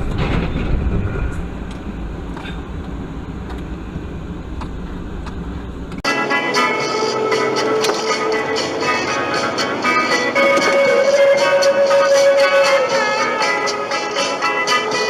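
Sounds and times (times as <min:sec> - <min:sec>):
car road and engine noise: 0:00.0 - 0:15.0
music: 0:06.0 - 0:15.0.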